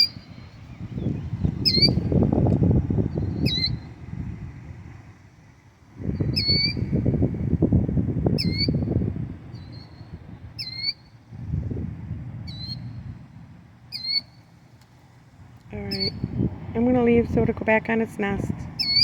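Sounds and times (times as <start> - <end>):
bird alarm calls: 0.0 - 2.1, 3.2 - 3.9, 6.2 - 6.9, 8.4 - 8.8, 9.6 - 11.2, 12.5 - 12.9, 13.9 - 14.4, 15.8 - 16.4, 18.8 - 19.0
low rumbling noise: 0.0 - 14.0, 15.1 - 19.0.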